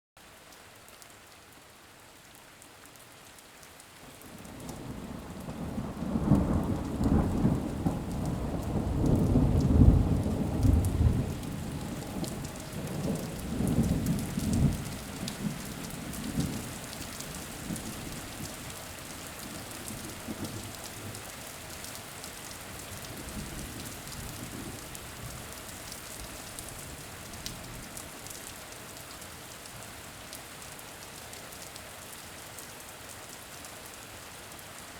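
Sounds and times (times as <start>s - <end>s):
rain falling: 0.2s - 34.9s
thunder rolling: 5.7s - 15.6s.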